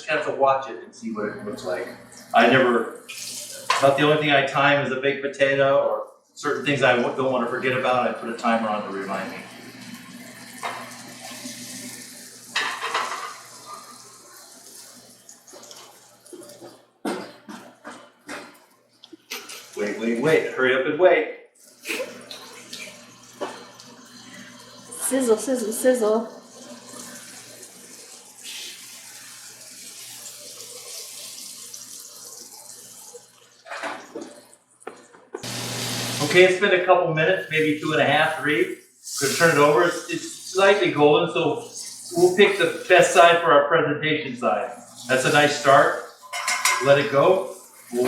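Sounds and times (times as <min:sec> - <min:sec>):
chicken sizzling in a pan: 0:09.0 - 0:16.3, 0:26.3 - 0:33.8, 0:35.4 - 0:36.5, 0:37.4 - 0:43.5, 0:44.8 - 0:48.0.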